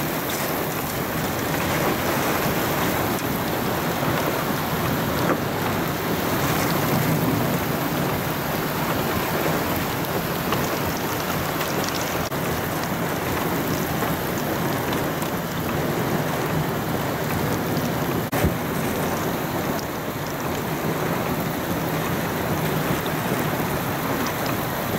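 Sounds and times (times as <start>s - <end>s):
heavy rain pouring: 0.0s - 24.9s
high wind: 0.0s - 24.9s.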